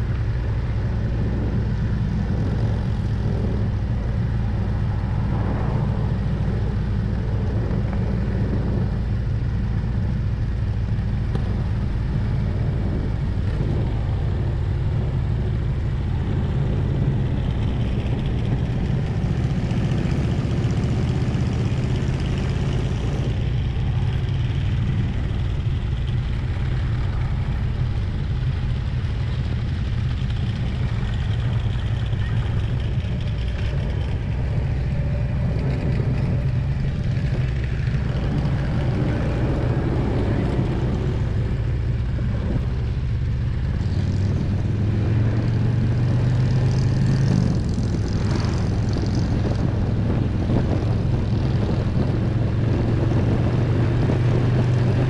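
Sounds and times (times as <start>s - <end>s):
motorcycle engine running: 0.0s - 55.0s
road noise: 0.0s - 55.0s
wind rushing: 1.2s - 9.1s.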